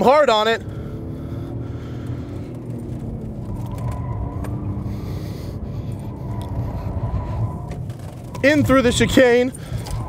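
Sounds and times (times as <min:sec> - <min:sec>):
car engine running hard: 0:00.0 - 0:10.0.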